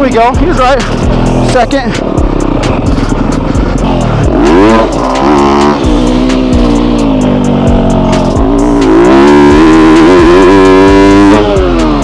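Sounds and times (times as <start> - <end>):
motorcycle engine revving hard: 0.0 - 12.0.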